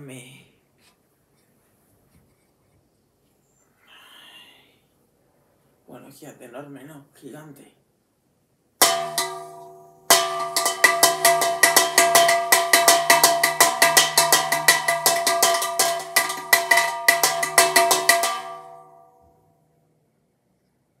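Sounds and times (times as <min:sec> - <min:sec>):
large bell ringing rapidly: 0:08.8 - 0:19.0.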